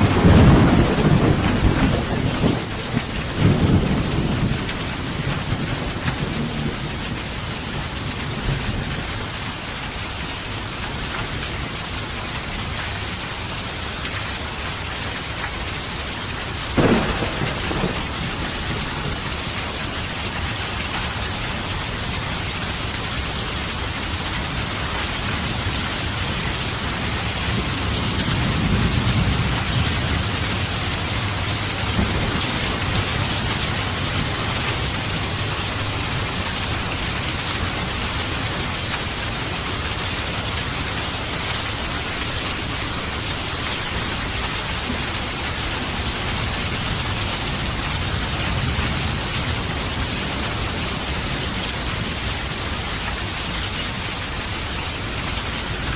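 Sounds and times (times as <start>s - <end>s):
rolling thunder: 0.0s - 9.2s, 16.7s - 21.3s, 24.6s - 39.4s
heavy rain: 0.0s - 55.9s.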